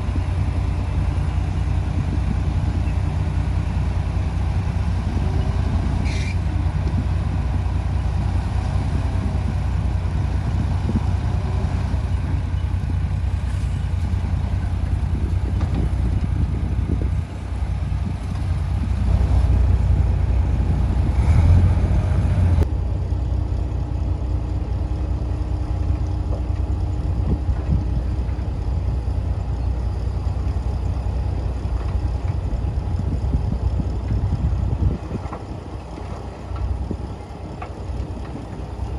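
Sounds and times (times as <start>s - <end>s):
diesel machinery rumbling: 0.0s - 38.9s.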